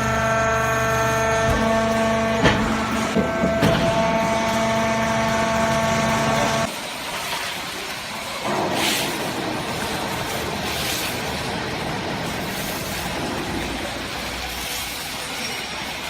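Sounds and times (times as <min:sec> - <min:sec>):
hydraulic pump motor humming: 0:00.0 - 0:06.7
knocks: 0:02.4 - 0:04.1.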